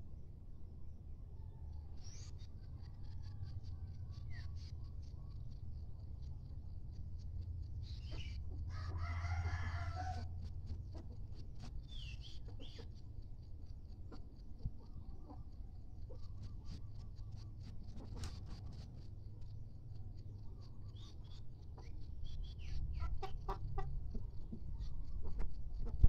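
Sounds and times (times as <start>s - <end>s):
steady low hum: 0.0s - 26.0s
rooster crowing: 8.7s - 10.4s
chicken calls: 20.3s - 26.0s.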